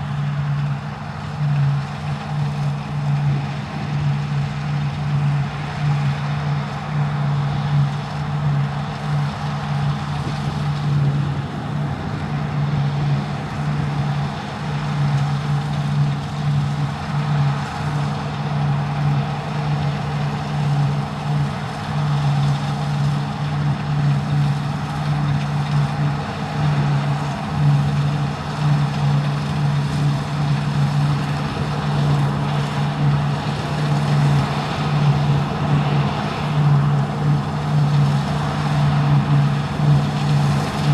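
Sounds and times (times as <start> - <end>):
combine harvester engine drone: 0.0 - 40.9.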